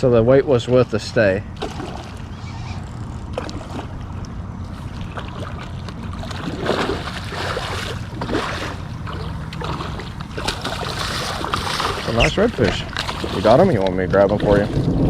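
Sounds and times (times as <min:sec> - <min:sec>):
steady low hum: 0:00.0 - 0:15.0
water sloshing around boat: 0:00.0 - 0:15.0
wind buffeting microphone: 0:00.0 - 0:15.0.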